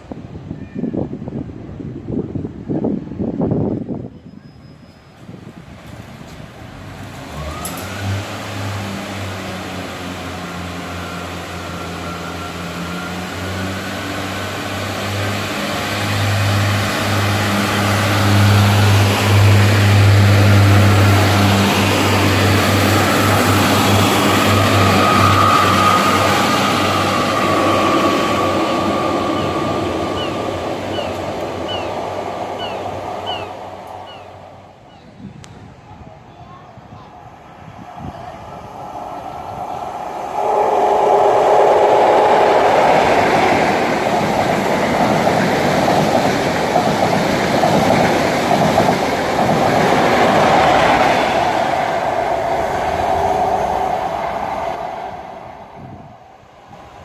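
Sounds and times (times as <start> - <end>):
diesel train engine drone: 1.2 - 57.0
high squeal: 4.1 - 5.4, 10.6 - 14.2, 22.4 - 31.9, 38.0 - 44.4.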